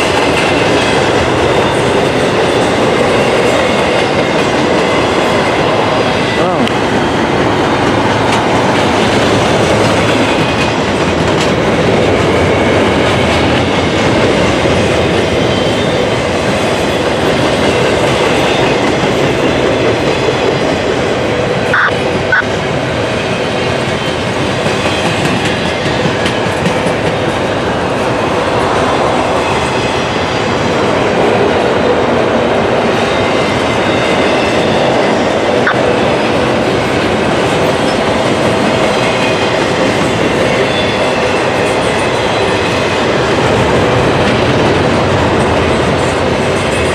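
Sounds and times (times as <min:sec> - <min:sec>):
freight train wheels rolling: 0:00.0 - 0:46.9
short high-pitched tones: 0:21.7 - 0:22.4.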